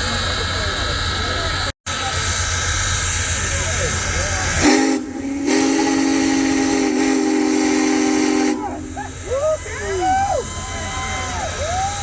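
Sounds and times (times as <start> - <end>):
hissing steam: 0.0 - 12.0
steam whistle blasts: 4.5 - 12.0.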